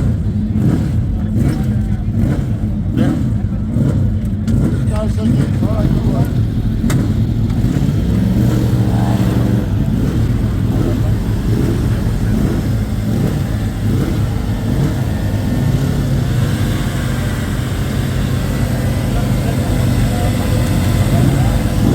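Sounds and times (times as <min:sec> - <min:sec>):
engine hum: 0:00.0 - 0:21.9
motorcycle engines revving: 0:00.0 - 0:21.9.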